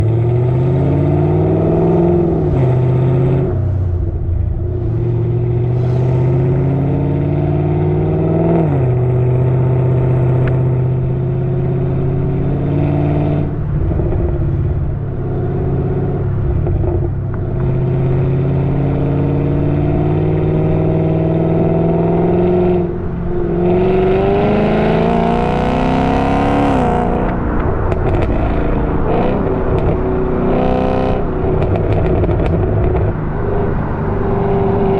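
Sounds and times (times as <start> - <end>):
car engine accelerating: 0.0 - 34.9
exhaust crackles: 2.2 - 7.4, 26.7 - 33.8.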